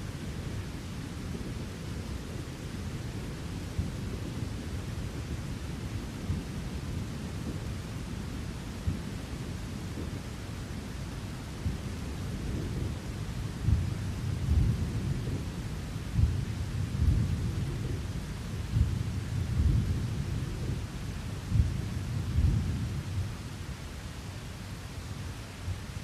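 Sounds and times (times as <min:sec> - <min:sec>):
rain hiss: 0:00.0 - 0:26.0
thunder rumbling: 0:11.6 - 0:23.5.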